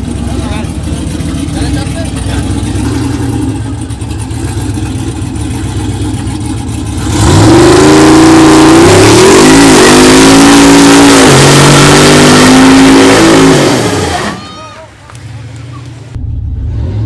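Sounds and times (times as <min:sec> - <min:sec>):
truck engine revving at full throttle: 0:00.0 - 0:17.0.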